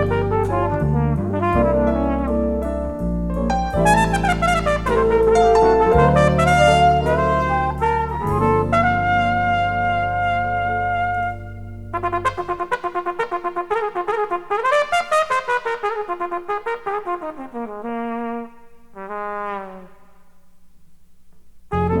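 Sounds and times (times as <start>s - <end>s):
solo brass horn: 0.0s - 20.3s, 21.7s - 22.0s
band playing: 3.5s - 12.6s.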